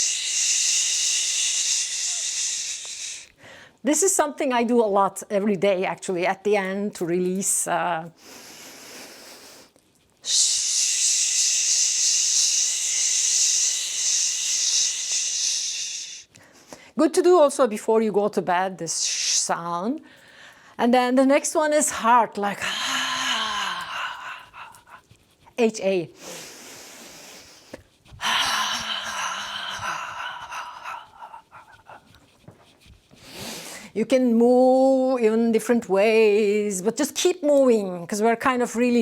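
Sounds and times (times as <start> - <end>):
person exhaling shhh: 0.0 - 3.8, 8.2 - 17.0, 22.7 - 25.0, 26.2 - 32.1, 33.2 - 34.0.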